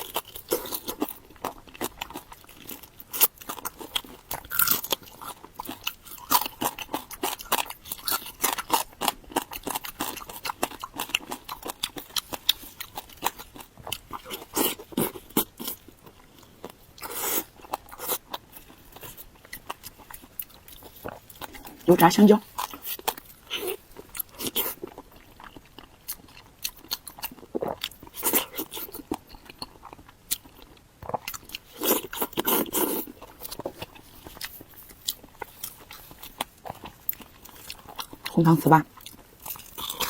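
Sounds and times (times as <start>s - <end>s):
crunching crisp fried food: 0.0s - 40.0s.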